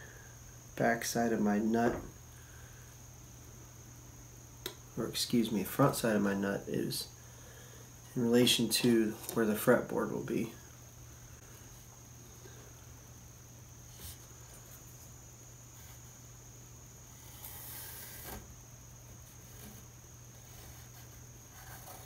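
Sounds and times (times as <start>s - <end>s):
pencil scratching on wood: 19.5s - 22.0s.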